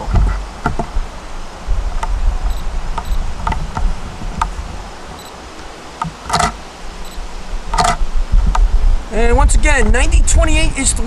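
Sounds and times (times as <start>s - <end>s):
electric train rumble: 0.0s - 11.0s
brief buzzing: 2.0s - 3.7s, 4.4s - 8.1s.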